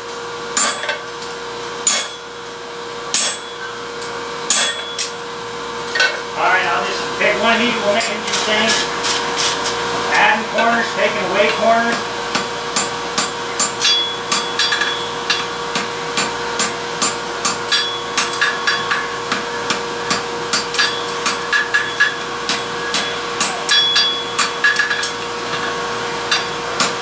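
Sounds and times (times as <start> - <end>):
hammer striking metal on anvil: 0.6 - 1.0, 1.8 - 2.3, 3.1 - 3.7, 4.5 - 5.1, 11.5 - 25.2
steady hum: 6.2 - 13.8.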